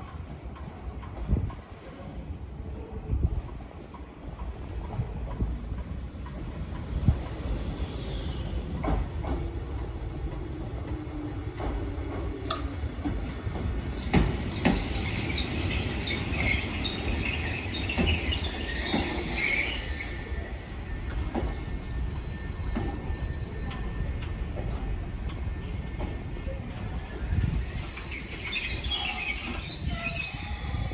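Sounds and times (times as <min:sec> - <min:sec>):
train rumbling past: 0:00.1 - 0:30.9
high-pitched wheel squeal: 0:27.3 - 0:30.9.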